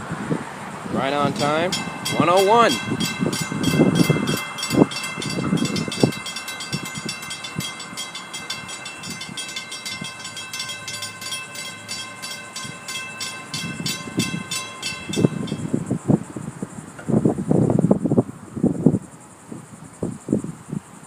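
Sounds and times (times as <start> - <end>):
crossing warning bell ringing: 1.0 - 16.0.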